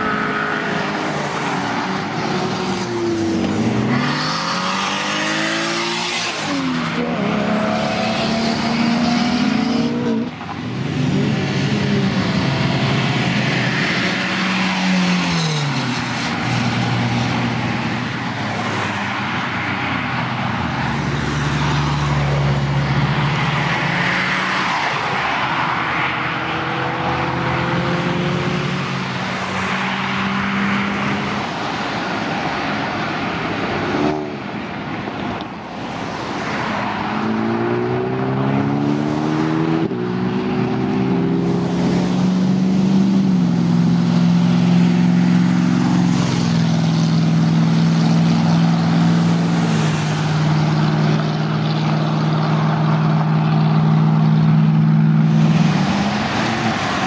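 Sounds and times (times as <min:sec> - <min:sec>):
car engine revving: 0:00.0 - 0:17.3, 0:36.8 - 0:57.0
car engines running: 0:00.0 - 0:57.0.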